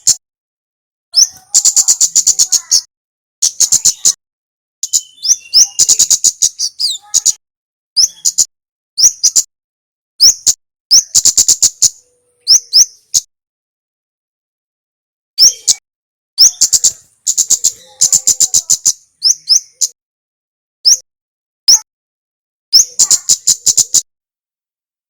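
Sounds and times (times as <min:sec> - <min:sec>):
bird song with chip notes: 0:01.2 - 0:04.2, 0:04.8 - 0:07.4, 0:08.0 - 0:09.5, 0:10.2 - 0:13.3, 0:15.4 - 0:15.8, 0:16.4 - 0:20.0, 0:20.8 - 0:21.0, 0:22.8 - 0:24.0.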